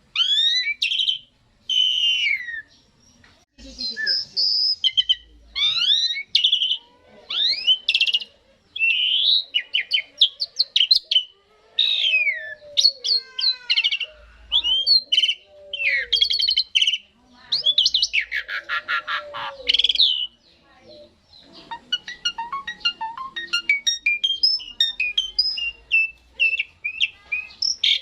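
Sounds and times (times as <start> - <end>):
starling singing whistles and rattles: 0.2 - 2.8, 3.6 - 8.2, 21.6 - 28.0.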